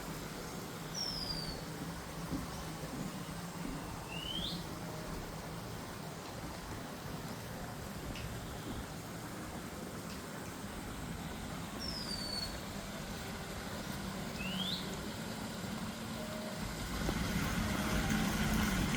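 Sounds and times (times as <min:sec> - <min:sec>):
low engine hum: 0:00.0 - 0:18.9
outdoor background noise: 0:00.0 - 0:18.9
short bird whistles: 0:11.8 - 0:12.5.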